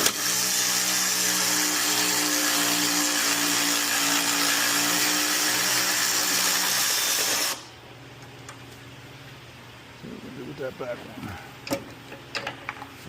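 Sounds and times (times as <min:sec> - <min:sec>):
power tool spinning out bolt: 0:00.0 - 0:03.3, 0:04.4 - 0:07.7.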